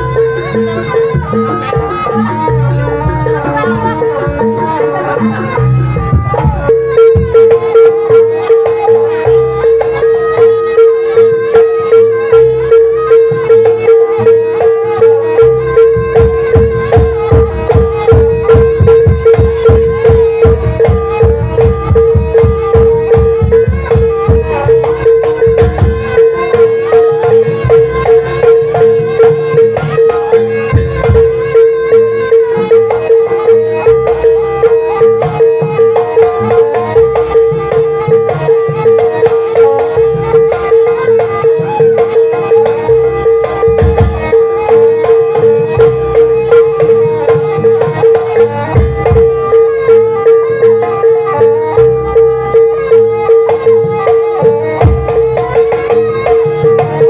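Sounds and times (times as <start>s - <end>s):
steady drum beat: 0.0s - 9.4s, 15.9s - 49.6s.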